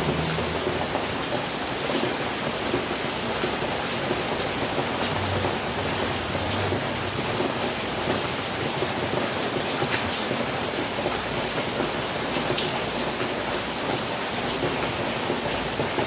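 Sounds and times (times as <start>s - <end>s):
rain on a roof: 0.0s - 16.0s
raindrop taps: 2.7s - 16.0s.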